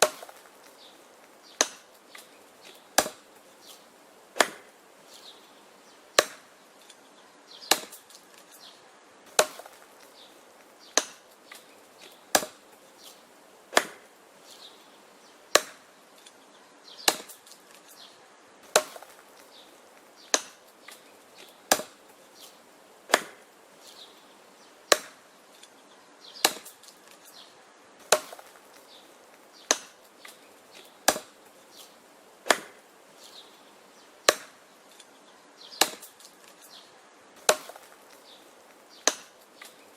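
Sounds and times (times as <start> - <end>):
wood chopping blows: 0.0 - 3.8, 4.4 - 4.8, 6.2 - 7.0, 7.6 - 8.6, 9.3 - 12.7, 13.7 - 14.1, 15.5 - 15.9, 17.0 - 17.9, 18.6 - 23.5, 24.9 - 25.2, 26.4 - 27.3, 28.0 - 32.8, 34.2 - 35.1, 35.8 - 36.7, 37.4 - 39.9.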